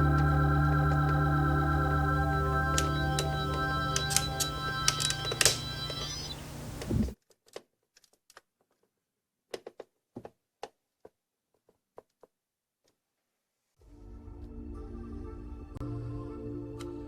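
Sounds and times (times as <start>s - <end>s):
background music: 0.0s - 6.2s, 13.9s - 17.0s.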